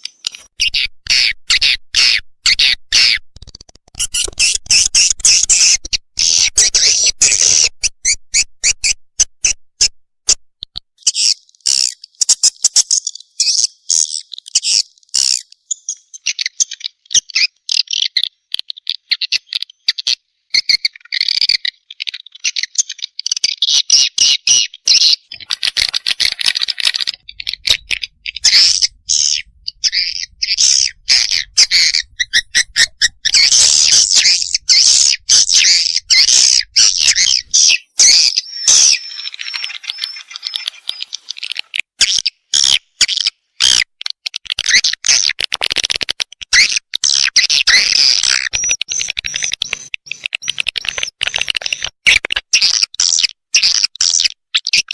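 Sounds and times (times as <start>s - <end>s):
high twittering bird chirps: 0.1s - 9.0s, 11.0s - 43.8s, 46.6s - 51.2s
rapid sharp clicks: 25.3s - 37.5s, 48.4s - 52.4s.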